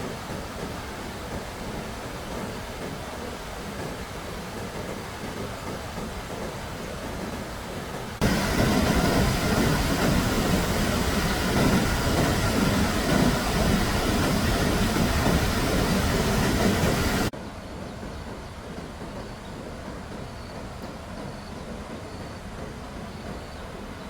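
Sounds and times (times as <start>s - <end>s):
loud rushing rumble: 8.2s - 17.3s.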